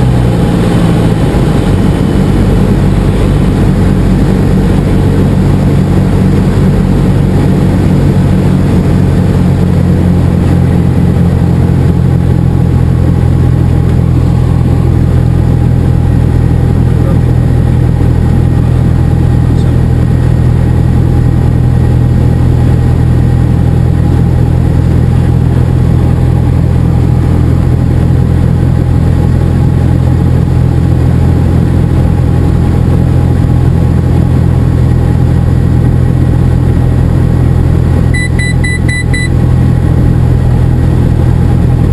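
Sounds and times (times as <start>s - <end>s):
light aircraft engine droning: 0.0s - 41.9s.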